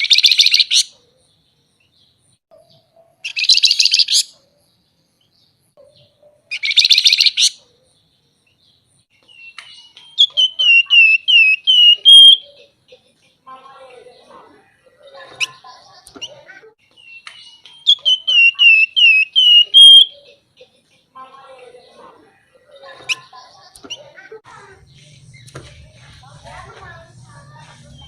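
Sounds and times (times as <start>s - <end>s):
down-slurred whistled bird notes: 9.3s - 12.5s, 17.0s - 20.3s.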